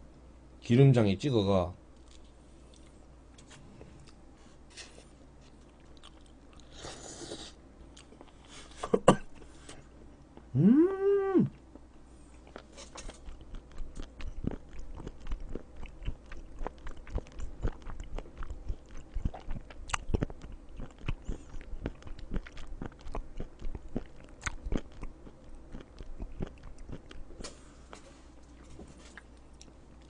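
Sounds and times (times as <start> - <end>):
wet chewing smacks and clicks: 12.4 - 27.3.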